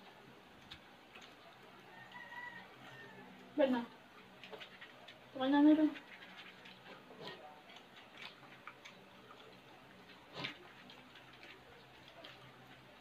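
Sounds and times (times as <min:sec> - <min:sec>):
mouth clicks and chewing: 0:00.6 - 0:02.3, 0:05.9 - 0:13.0.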